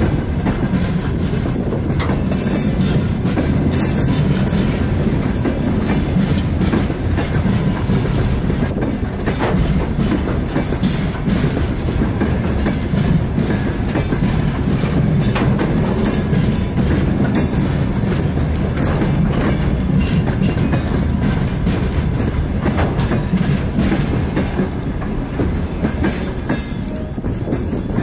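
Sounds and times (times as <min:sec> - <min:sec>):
diesel locomotive engine droning: 0:00.0 - 0:28.0
wheels clicking over rail joints: 0:00.0 - 0:28.0.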